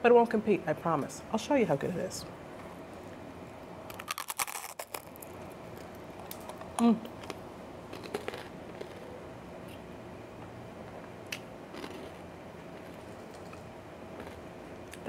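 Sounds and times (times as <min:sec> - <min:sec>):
faint crunches and mouth clicks: 0:03.9 - 0:09.1
person chewing food: 0:03.9 - 0:09.8, 0:11.3 - 0:13.3, 0:14.2 - 0:15.0.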